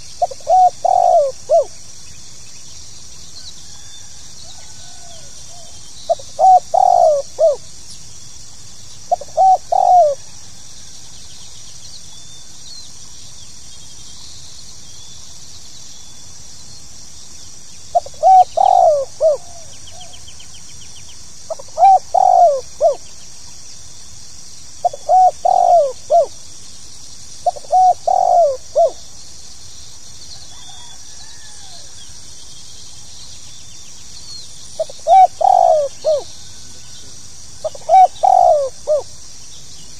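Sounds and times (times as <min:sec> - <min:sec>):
dove cooing: 0:00.0 - 0:01.8, 0:04.5 - 0:07.7, 0:09.1 - 0:10.4, 0:17.9 - 0:20.2, 0:21.5 - 0:23.0, 0:24.8 - 0:26.4, 0:27.4 - 0:29.1, 0:34.8 - 0:36.4, 0:37.6 - 0:39.2.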